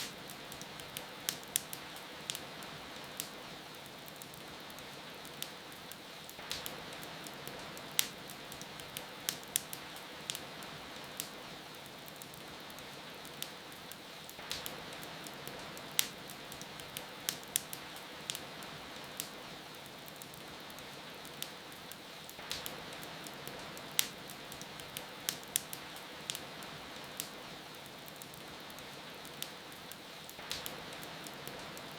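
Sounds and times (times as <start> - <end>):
rain hissing: 0.0 - 3.6
rain hiss: 0.0 - 31.9
wood fire crackling: 0.0 - 31.9.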